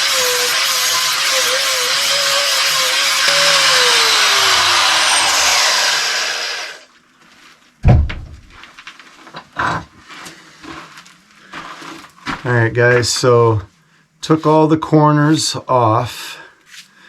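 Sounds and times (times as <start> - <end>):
angle grinder grinding steel: 0.0 - 6.9
loud knock: 7.8 - 8.6.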